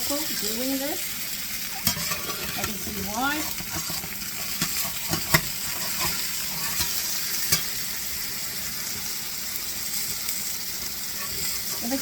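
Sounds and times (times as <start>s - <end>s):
chicken sizzling in a pan: 0.0s - 12.0s
metal spatula scraping pan: 1.7s - 7.8s, 11.1s - 12.0s.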